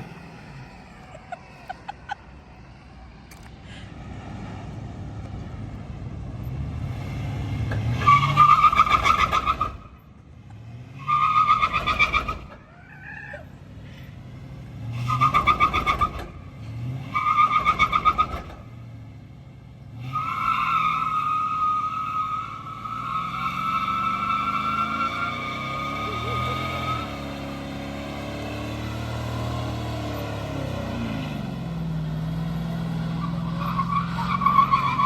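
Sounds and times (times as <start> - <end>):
engine revving: 3.0 - 35.0
tires squealing: 6.4 - 19.0, 19.8 - 35.0.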